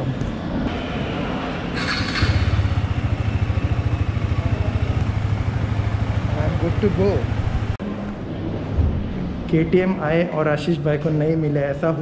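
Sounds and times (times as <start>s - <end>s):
motorcycle engine idling: 1.8s - 7.8s.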